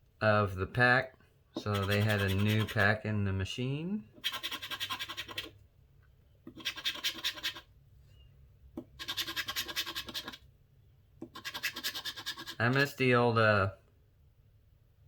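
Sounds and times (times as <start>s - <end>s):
lottery ticket being scratched: 1.6s - 3.0s, 4.2s - 5.6s, 6.5s - 7.7s, 8.9s - 10.4s, 11.2s - 12.9s.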